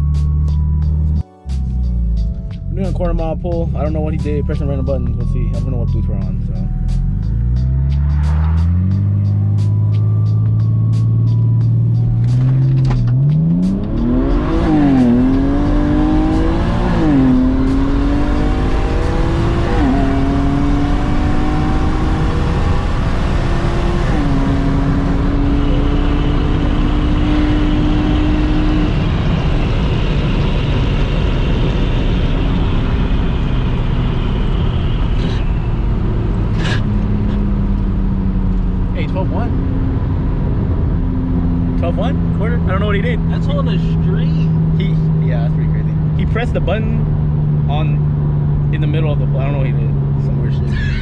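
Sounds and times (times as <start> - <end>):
car engine accelerating: 0.0 - 51.0.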